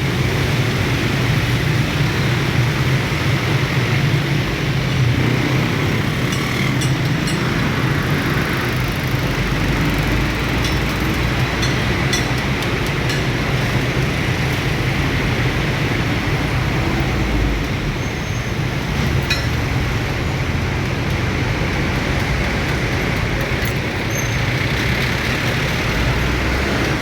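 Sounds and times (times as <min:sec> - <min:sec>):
train rumbling past: 0:00.0 - 0:27.0
sharp clicks of train wheels: 0:04.6 - 0:16.8, 0:18.6 - 0:27.0.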